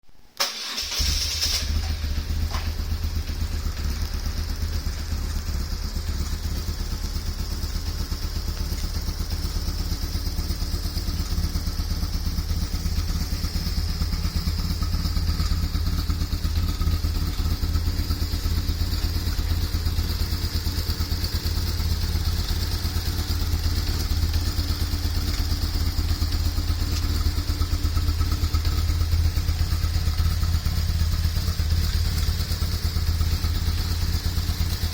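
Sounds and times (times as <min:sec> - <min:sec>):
motorcycle engine starting and idling: 0:00.3 - 0:34.9.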